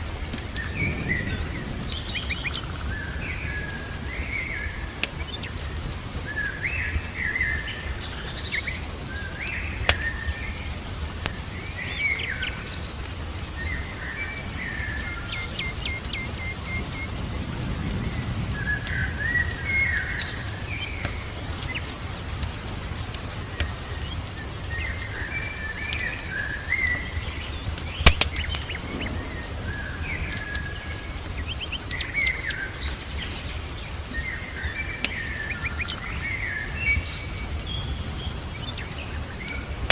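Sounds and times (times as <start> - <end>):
fire crackling and popping: 0.0 - 39.9
rain hiss: 0.0 - 39.9
birds chirping and singing: 0.6 - 39.9.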